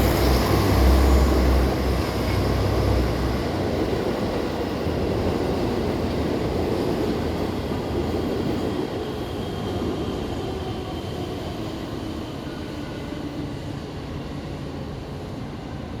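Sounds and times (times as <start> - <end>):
diesel railcar engine: 0.0 - 4.4.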